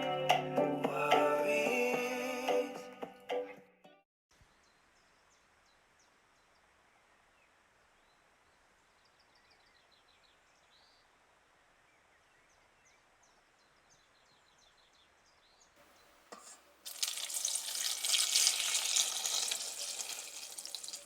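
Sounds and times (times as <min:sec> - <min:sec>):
small birds chirping: 0:04.4 - 0:11.2, 0:11.9 - 0:16.3.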